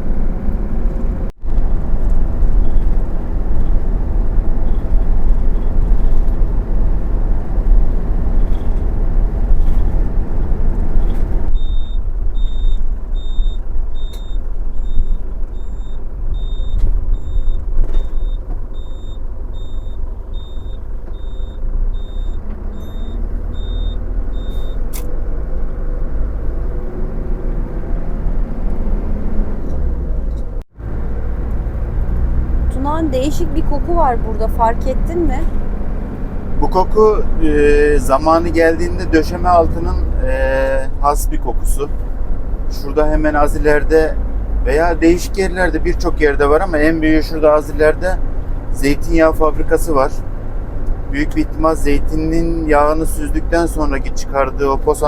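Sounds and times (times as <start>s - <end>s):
engine and road rumble: 0.0s - 55.0s
high electronic beep: 11.5s - 24.8s.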